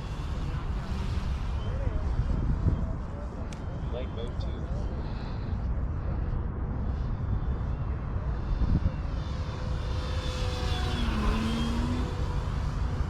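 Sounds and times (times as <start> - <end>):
model plane motor whine: 7.4 - 13.0.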